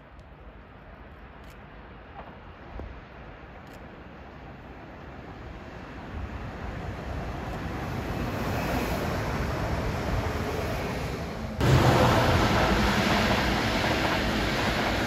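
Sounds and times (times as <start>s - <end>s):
train wheels rushing: 7.1s - 15.0s.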